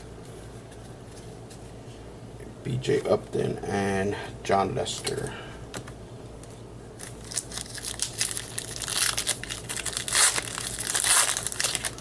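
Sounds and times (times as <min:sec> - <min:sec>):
foil wrapper tearing and crinkling: 0:07.0 - 0:12.0.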